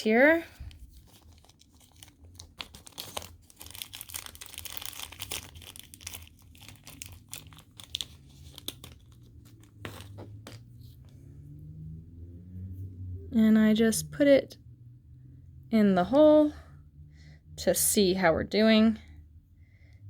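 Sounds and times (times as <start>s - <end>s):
crinkling rustles: 0.0s - 11.1s.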